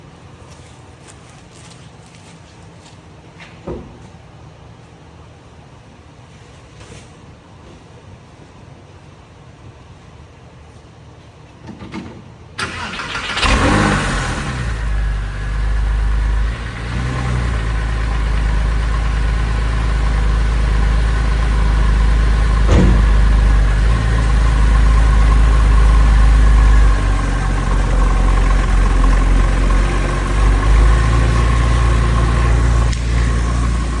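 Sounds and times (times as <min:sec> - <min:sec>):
starter motor cranking: 0:12.6 - 0:14.6
car engine revving and idling: 0:12.6 - 0:34.0.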